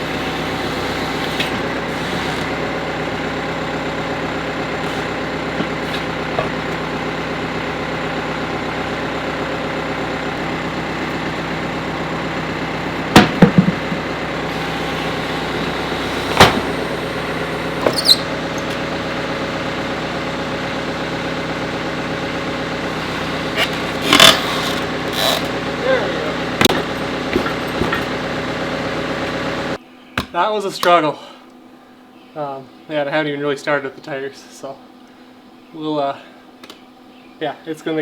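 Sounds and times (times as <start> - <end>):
diesel engine running: 0.0 - 29.8.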